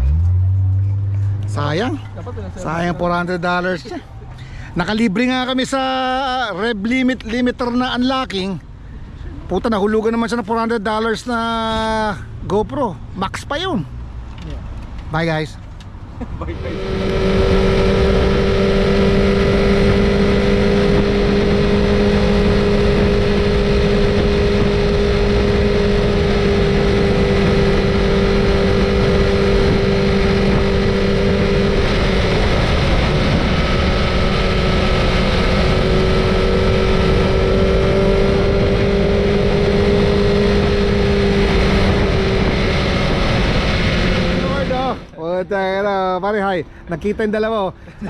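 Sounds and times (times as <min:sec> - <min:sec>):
motorcycle engine cruising: 0:15.6 - 0:45.2
rushing wind: 0:15.9 - 0:45.2.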